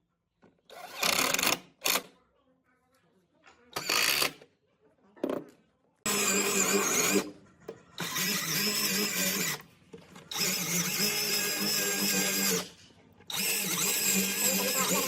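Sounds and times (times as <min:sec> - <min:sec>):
power tool motor running: 0:06.1 - 0:07.3, 0:08.0 - 0:09.6, 0:10.3 - 0:15.0.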